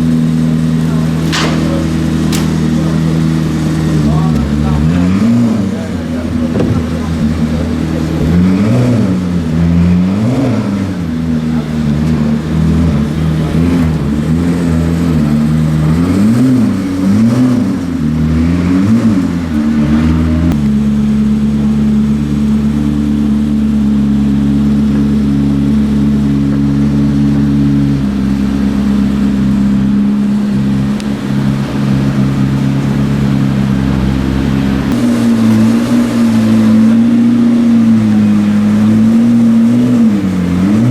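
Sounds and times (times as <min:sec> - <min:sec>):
car engine revving and idling: 0:00.0 - 0:40.9.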